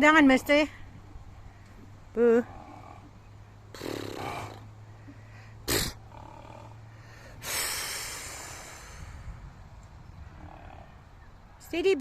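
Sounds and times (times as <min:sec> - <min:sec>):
horse snorting: 0:02.4 - 0:04.8, 0:05.6 - 0:06.8.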